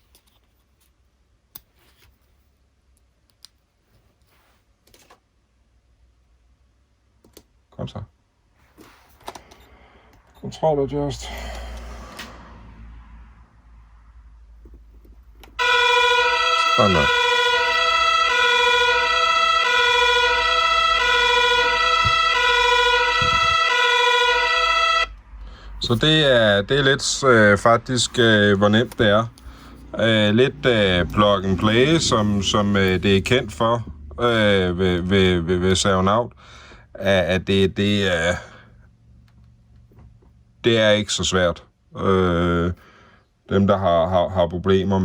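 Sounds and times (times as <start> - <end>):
soft rustle: 3.7 - 5.1, 8.5 - 9.3
two-tone siren through small speaker: 15.6 - 25.2.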